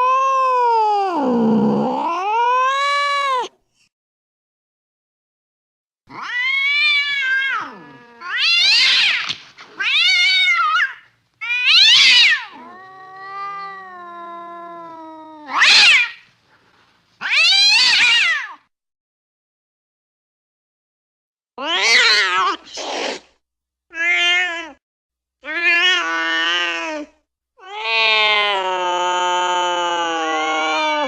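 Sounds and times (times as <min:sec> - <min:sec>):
cat yowling: 0:00.0 - 0:03.5, 0:06.1 - 0:16.3, 0:17.2 - 0:18.6, 0:21.6 - 0:22.7, 0:25.4 - 0:31.0.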